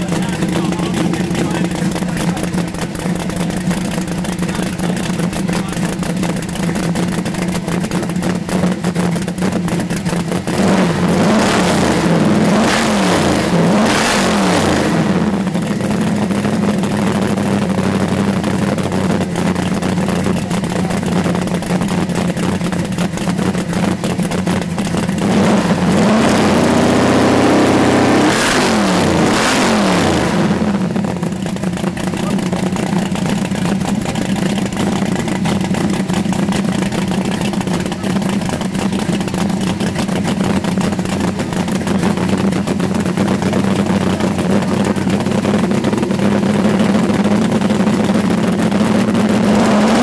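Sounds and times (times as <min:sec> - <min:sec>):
car engine idling and revving: 0:00.0 - 0:50.0.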